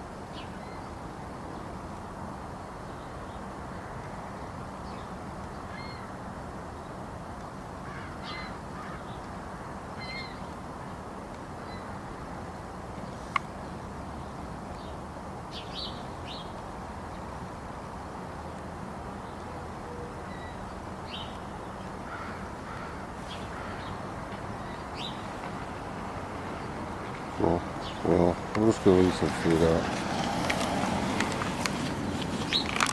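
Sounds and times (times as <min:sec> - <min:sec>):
low background noise: 0:00.0 - 0:32.9
crows cawing: 0:07.8 - 0:09.1, 0:22.0 - 0:24.2.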